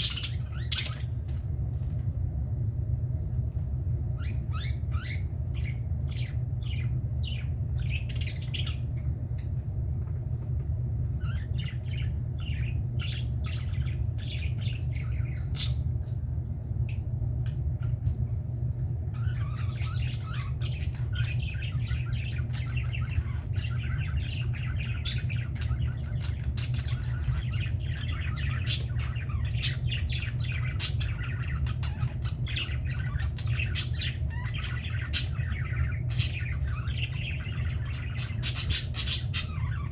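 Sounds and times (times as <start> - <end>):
budgerigars chirping: 0.0 - 1.1, 4.2 - 9.1, 11.2 - 15.8, 19.1 - 39.9
steady low hum: 0.0 - 39.9.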